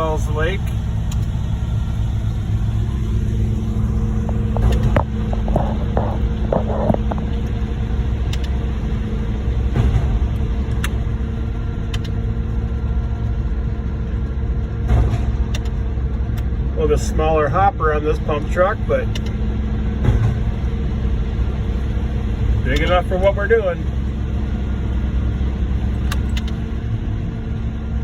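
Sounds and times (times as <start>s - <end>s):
diesel truck engines rumbling: 0.0s - 28.0s
sharp clicks and knocks: 0.6s - 1.4s, 3.6s - 8.7s, 9.6s - 11.2s, 11.8s - 12.3s, 14.7s - 16.5s, 19.0s - 19.4s, 20.0s - 23.4s, 26.0s - 26.6s.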